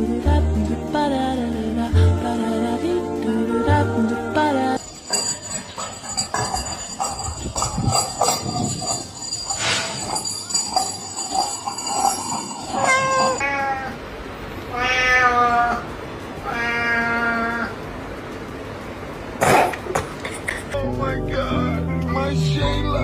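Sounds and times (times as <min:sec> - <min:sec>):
cat meowing: 0:12.8 - 0:14.0, 0:14.7 - 0:17.8.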